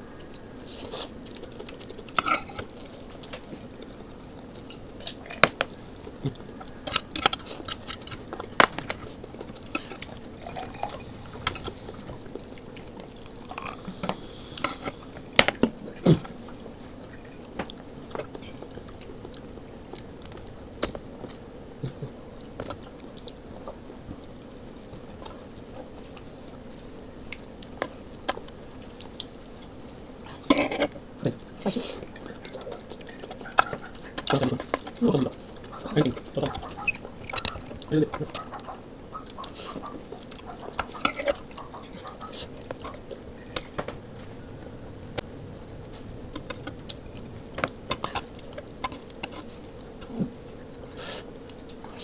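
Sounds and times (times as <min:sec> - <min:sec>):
people chewing and slurping food: 0:00.0 - 0:52.0
cutlery clicking against dishes: 0:35.6 - 0:38.7.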